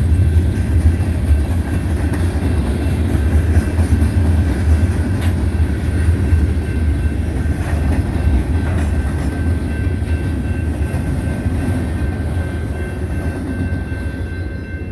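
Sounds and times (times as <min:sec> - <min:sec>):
wheels clicking over rail joints: 0:00.0 - 0:14.3
freight train cars rolling: 0:00.0 - 0:14.9.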